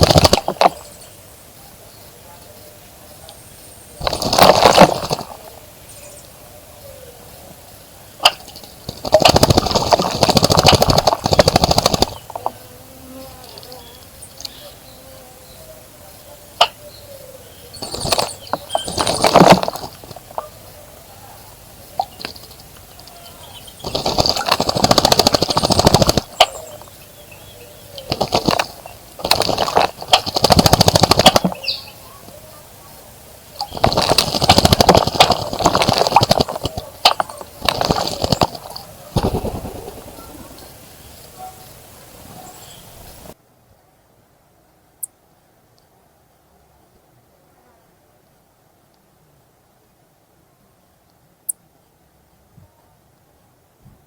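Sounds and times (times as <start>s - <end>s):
bird splashing in water: 0.0s - 0.9s, 4.0s - 5.5s, 8.2s - 12.4s, 17.8s - 20.5s, 23.7s - 27.0s, 28.0s - 31.9s, 33.6s - 40.8s.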